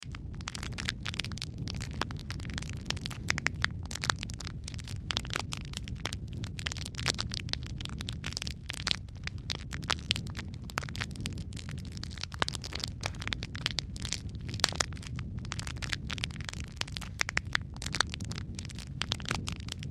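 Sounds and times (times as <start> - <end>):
wood fire crackling and popping: 0.0 - 19.9.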